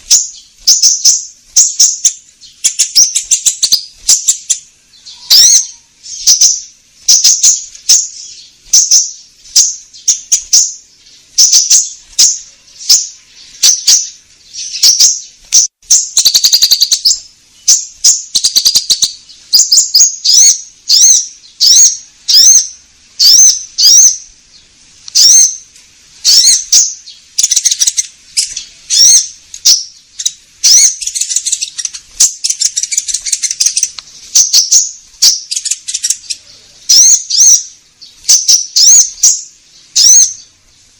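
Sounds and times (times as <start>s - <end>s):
sharp high bird chirps: 0.0s - 40.6s.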